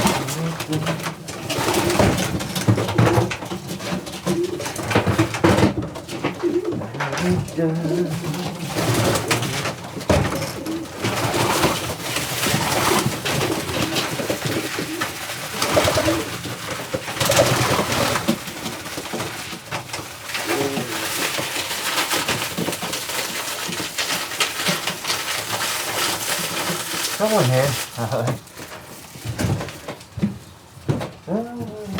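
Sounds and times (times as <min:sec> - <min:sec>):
pigeons cooing: 0:00.0 - 0:22.2, 0:31.3 - 0:31.9.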